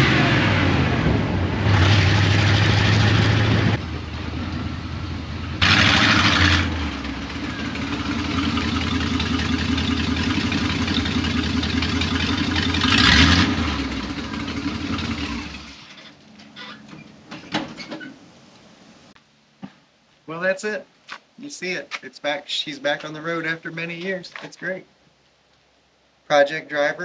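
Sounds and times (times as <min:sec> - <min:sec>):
pickup engine running and revving: 0:00.0 - 0:16.1.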